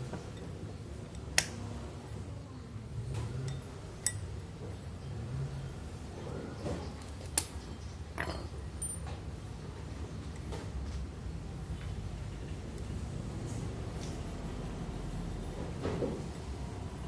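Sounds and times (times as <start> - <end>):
metal parts clinking and scraping: 7.1 - 9.1.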